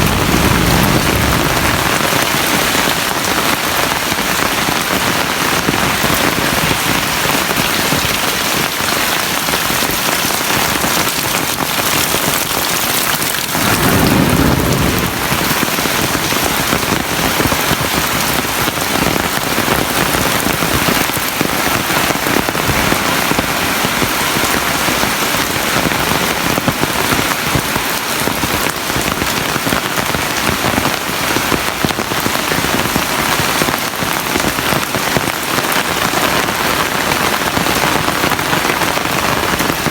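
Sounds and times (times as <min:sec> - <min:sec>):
low rumble: 0:00.0 - 0:02.7, 0:13.3 - 0:16.7
heavy rain falling: 0:00.0 - 0:39.9.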